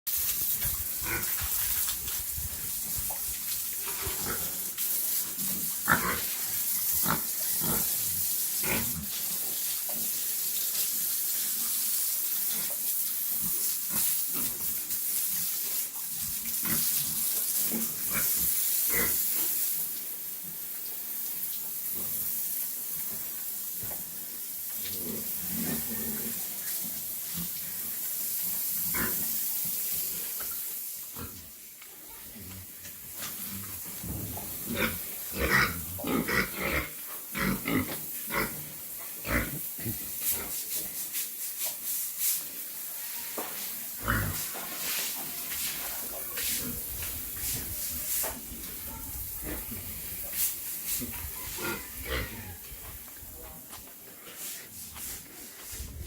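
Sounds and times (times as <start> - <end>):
steady high hiss: 0.1 - 56.0
pigs grunting and squealing: 3.8 - 4.7, 5.6 - 9.2, 24.9 - 26.5, 34.5 - 40.0, 44.0 - 44.5, 50.9 - 53.0.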